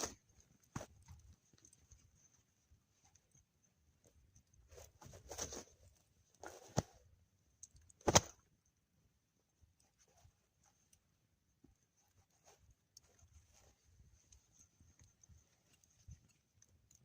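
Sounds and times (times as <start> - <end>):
rustling: 0.0 - 7.1, 11.6 - 17.0.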